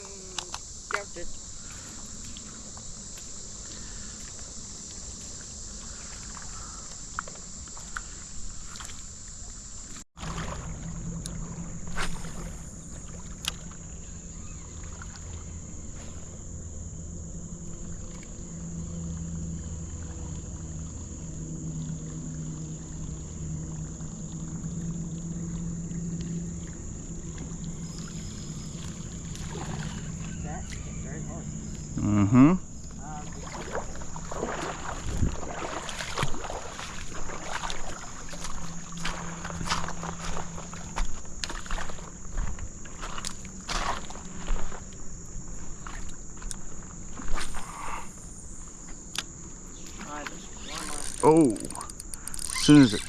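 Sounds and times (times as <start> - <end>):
high-pitched insect drone: 0.0 - 10.0, 10.8 - 35.8, 46.8 - 53.0
rumble of moving water: 0.0 - 53.0
sharp clicks: 49.2 - 53.0.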